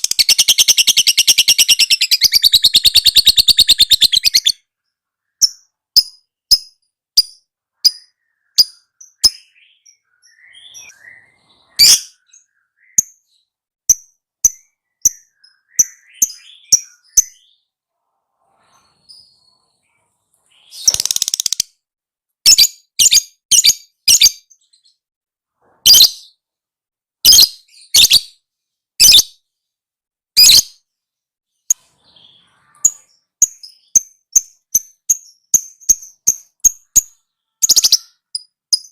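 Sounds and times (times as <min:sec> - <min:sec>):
harsh bird chattering: 0:00.0 - 0:04.6, 0:20.6 - 0:21.7
lovebird chirping: 0:00.0 - 0:21.8, 0:22.4 - 0:25.0, 0:25.7 - 0:26.4, 0:27.2 - 0:28.4, 0:29.0 - 0:29.4, 0:30.4 - 0:30.8, 0:31.6 - 0:38.9.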